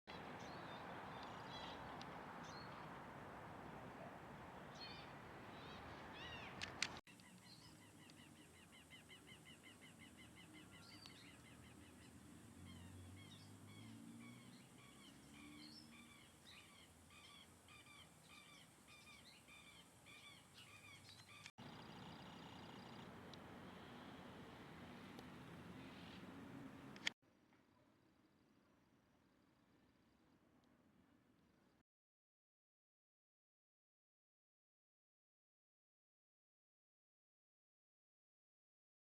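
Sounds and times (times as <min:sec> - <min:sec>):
songbirds chirping and trilling: 0:00.1 - 0:27.1.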